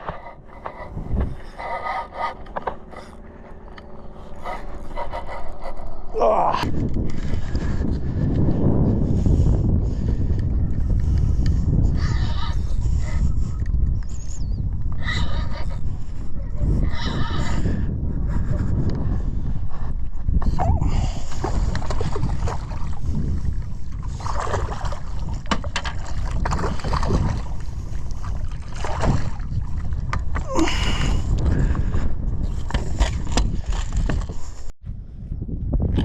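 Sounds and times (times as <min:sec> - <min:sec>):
wind buffeting microphone: 0:00.0 - 0:36.0
water sloshing: 0:21.2 - 0:30.5.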